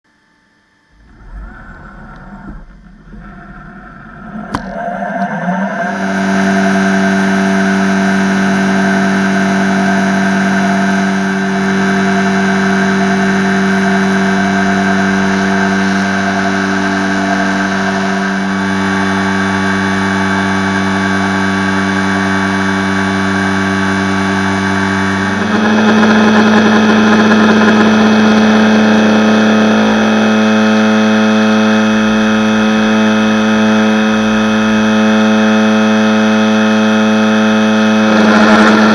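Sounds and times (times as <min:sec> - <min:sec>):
milling spindle whine: 0:00.1 - 0:38.9
grinding hiss: 0:00.9 - 0:04.8.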